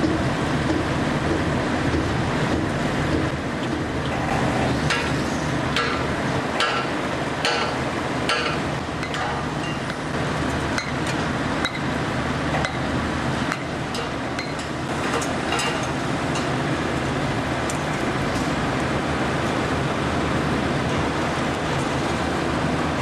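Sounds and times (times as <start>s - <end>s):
machinery drone: 0.0s - 23.0s.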